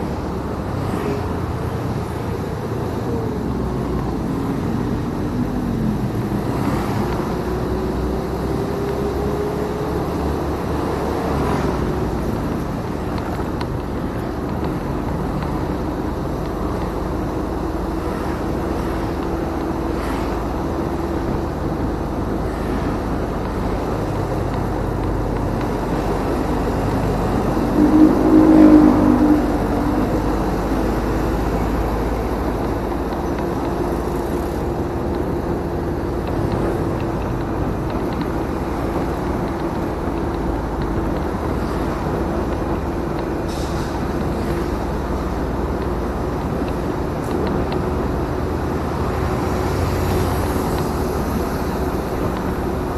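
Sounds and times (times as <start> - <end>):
motorcycle engine drone: 0.0 - 52.9
wind and road rumble: 0.0 - 52.9
pitched tone of passing vehicle: 26.7 - 31.8.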